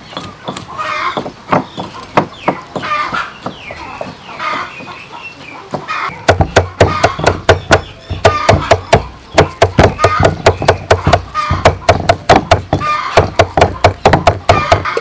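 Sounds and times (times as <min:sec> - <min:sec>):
chickens clucking: 0:00.0 - 0:15.0
knife chopping on wooden board: 0:06.2 - 0:15.0.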